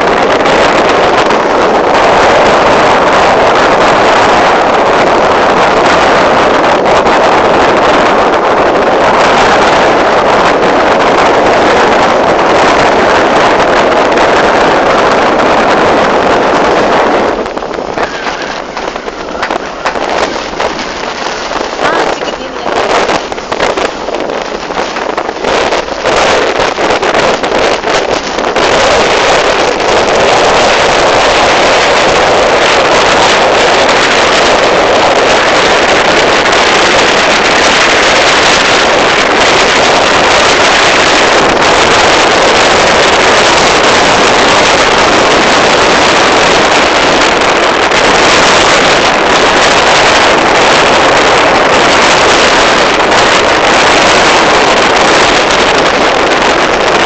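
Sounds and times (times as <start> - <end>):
water along boat hull: 0.0 - 57.0
wind on microphone: 0.0 - 57.0.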